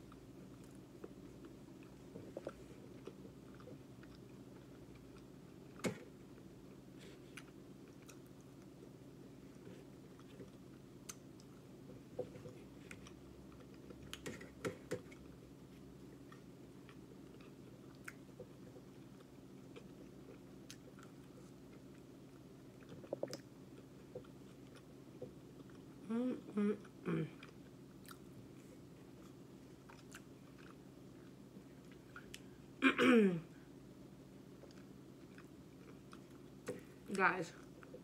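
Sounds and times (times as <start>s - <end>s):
chewing with wet mouth clicks: 0.1s - 5.8s, 7.3s - 8.7s, 10.1s - 11.7s, 16.2s - 22.1s, 22.7s - 26.0s, 29.2s - 32.5s, 34.6s - 36.9s.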